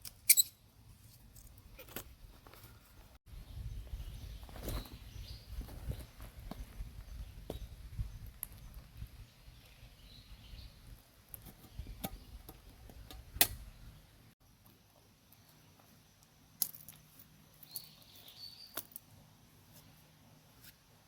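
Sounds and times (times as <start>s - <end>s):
faint high chirp: 17.6s - 18.9s.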